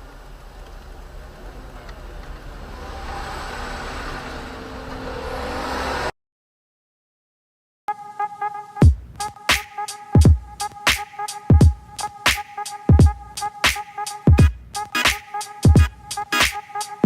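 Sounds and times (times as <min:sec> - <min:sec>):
road noise: 0:00.0 - 0:06.1
car engine accelerating: 0:00.8 - 0:06.1.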